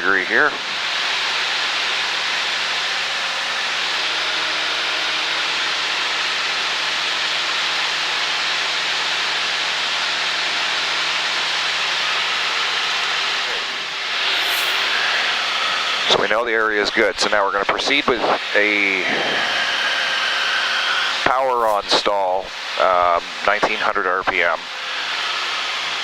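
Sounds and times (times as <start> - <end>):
light aircraft engine and propeller: 0.0 - 26.0
airflow noise: 14.0 - 15.6, 21.4 - 22.5.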